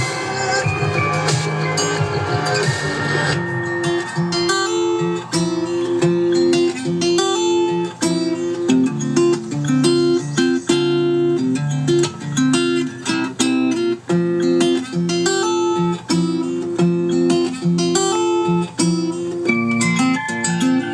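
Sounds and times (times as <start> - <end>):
acoustic guitar music: 0.0 - 20.9.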